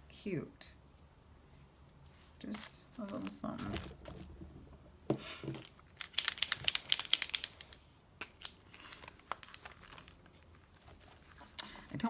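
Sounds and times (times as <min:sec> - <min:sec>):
paper crinkling and rustling: 0:02.4 - 0:04.4, 0:08.4 - 0:12.0.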